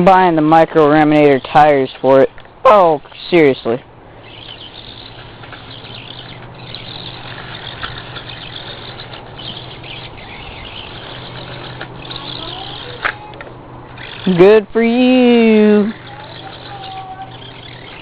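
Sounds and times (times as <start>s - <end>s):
rc truck electric motor whirring: 4.1s - 18.0s.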